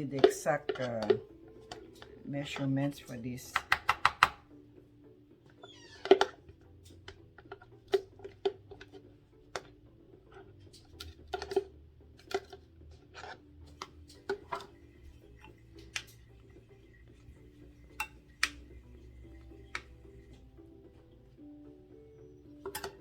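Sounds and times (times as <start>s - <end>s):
utensil tapping against bowl: 3.5s - 4.4s, 17.8s - 20.0s.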